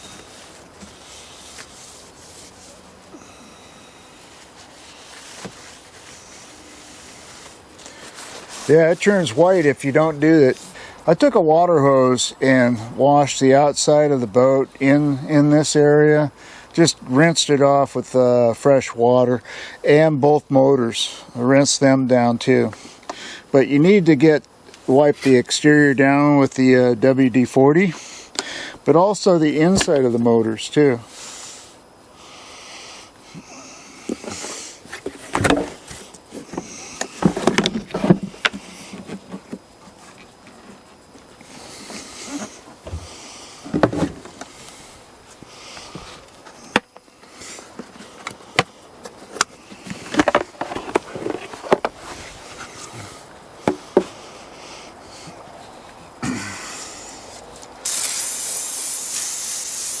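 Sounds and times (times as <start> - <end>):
aerosol can spraying: 57.8 - 60.0.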